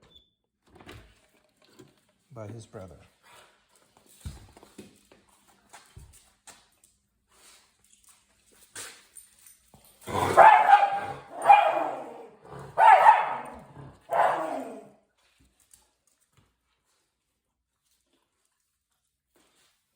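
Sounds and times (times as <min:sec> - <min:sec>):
dog barking: 0:10.1 - 0:15.0.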